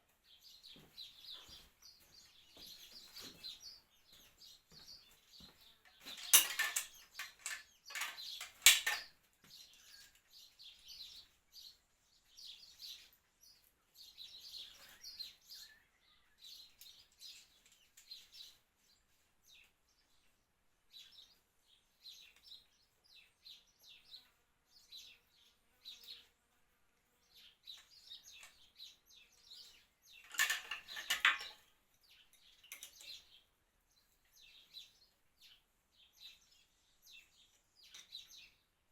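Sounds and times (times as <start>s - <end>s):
birds chirping: 0.0s - 38.9s
metal tools clinking: 5.8s - 9.2s, 30.2s - 31.7s.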